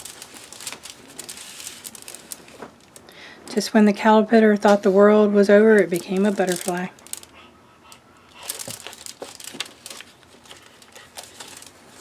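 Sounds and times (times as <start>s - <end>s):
paper rustling and crinkling: 0.0s - 3.0s, 4.5s - 7.3s, 8.4s - 12.0s.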